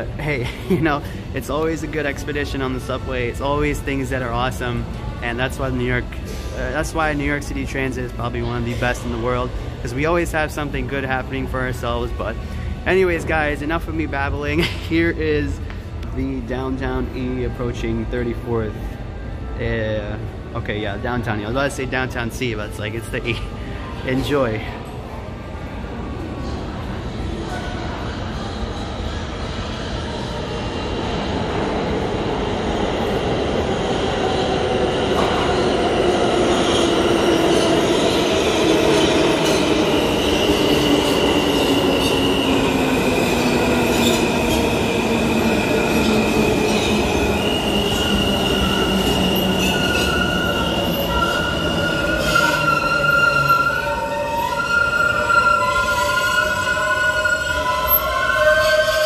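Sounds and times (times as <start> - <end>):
subway train rumble: 0.0 - 59.0
wheel and brake squeal: 46.7 - 59.0.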